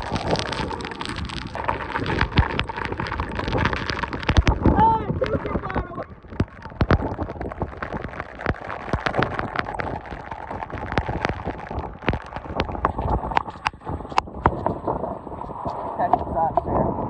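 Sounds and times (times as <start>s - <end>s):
rain falling hard: 0.0s - 7.8s.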